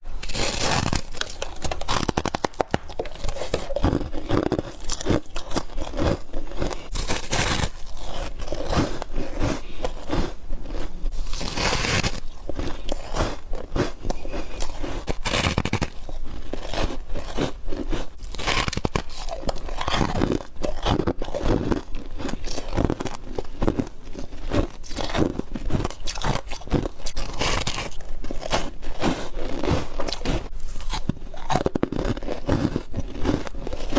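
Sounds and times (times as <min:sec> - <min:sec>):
person crunching ice: 0:00.1 - 0:33.9.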